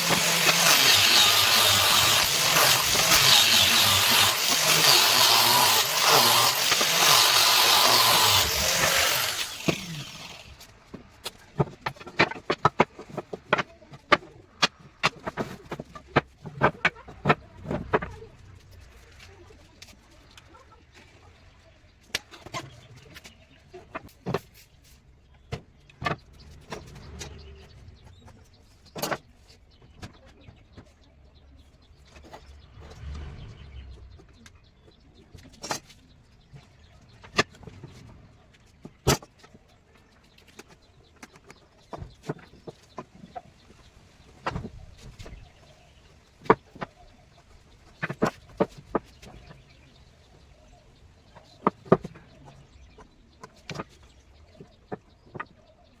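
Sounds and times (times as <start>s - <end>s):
low rumble: 32.5s - 34.4s.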